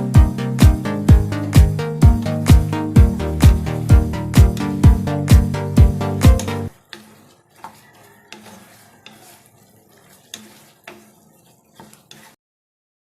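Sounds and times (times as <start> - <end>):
music with heavy beat: 0.0 - 6.7
metal utensil clinking on pan: 6.4 - 12.4.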